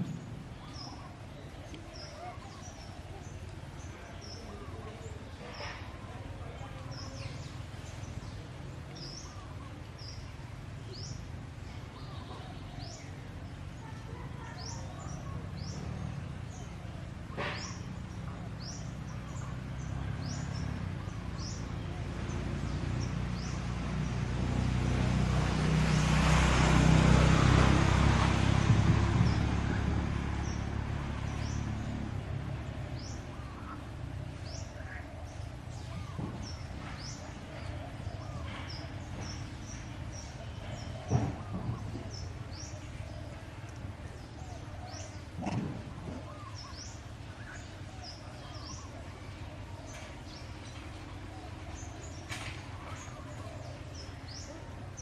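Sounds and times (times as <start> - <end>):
birds chirping: 0.0 - 55.0
loud rumbling: 19.6 - 37.7.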